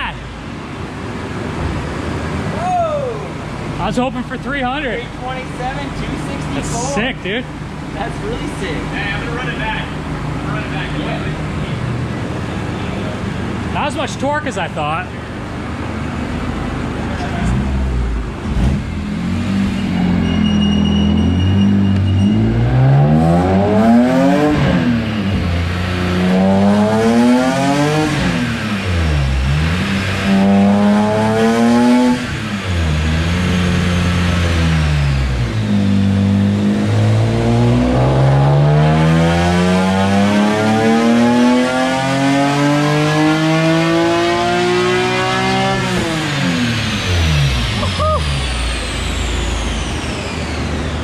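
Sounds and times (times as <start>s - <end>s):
race car engine revving: 3.3s - 51.0s.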